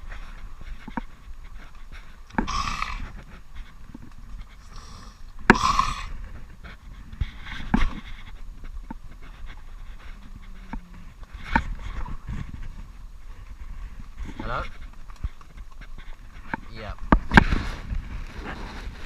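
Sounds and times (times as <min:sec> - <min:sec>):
man breathing hard: 0:01.9 - 0:03.7, 0:04.4 - 0:06.4.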